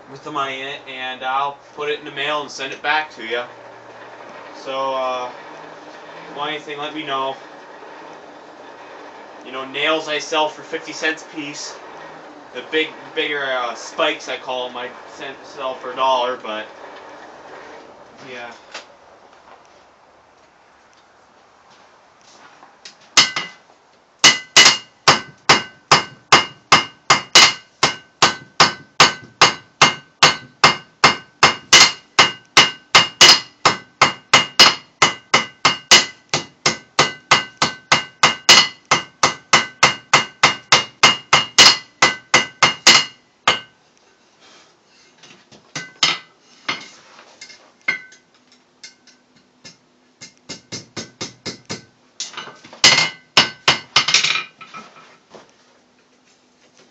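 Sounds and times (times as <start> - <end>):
hammer striking anvil: 23.2 - 23.6, 24.2 - 43.8, 45.8 - 46.8, 47.9 - 54.5.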